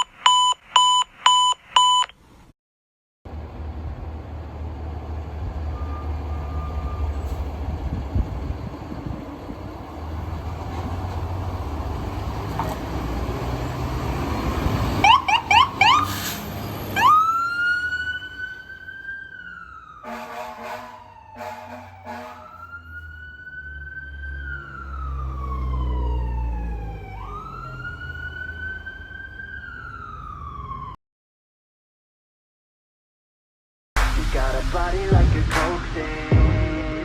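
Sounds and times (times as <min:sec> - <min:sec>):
diesel engine rumbling: 0:03.3 - 0:30.6
siren chirps: 0:05.6 - 0:07.6, 0:13.7 - 0:31.0
electronic siren wailing: 0:15.0 - 0:16.1, 0:16.8 - 0:31.0.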